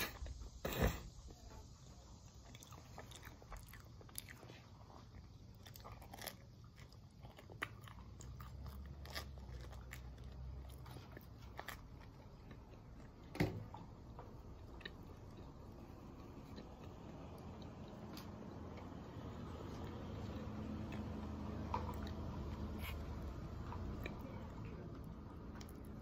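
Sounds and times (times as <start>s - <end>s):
person chewing food: 1.7s - 26.0s
thump: 13.3s - 13.6s.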